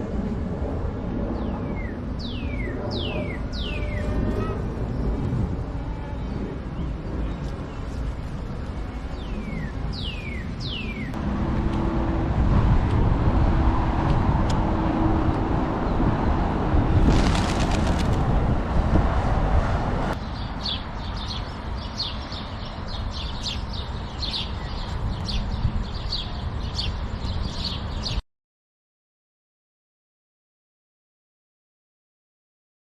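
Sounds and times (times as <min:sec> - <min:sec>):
low rumbling noise: 0:00.0 - 0:23.2
birds whistling falling calls: 0:09.2 - 0:11.1.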